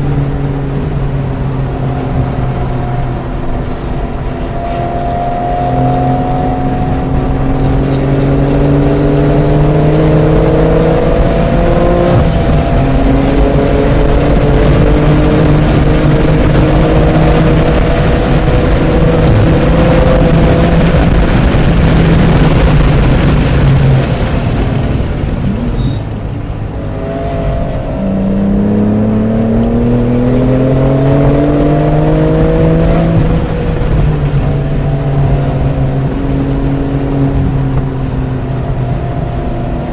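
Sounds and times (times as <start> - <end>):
car engine accelerating hard: 0.0 - 39.9
wind noise: 0.0 - 39.9.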